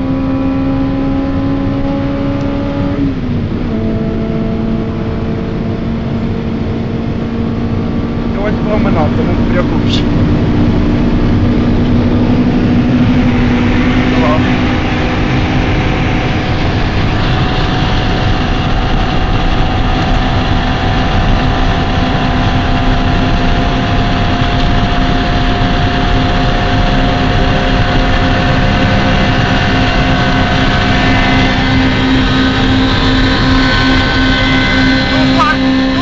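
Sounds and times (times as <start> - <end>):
car engine running hard: 0.0 - 36.0
road noise: 0.0 - 36.0
wind noise: 0.0 - 36.0.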